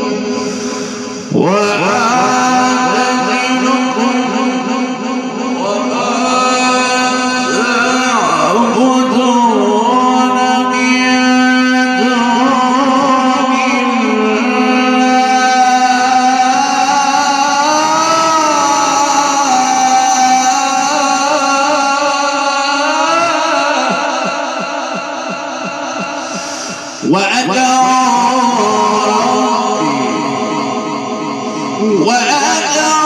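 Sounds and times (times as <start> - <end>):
man reciting melodically: 0.0 - 33.0.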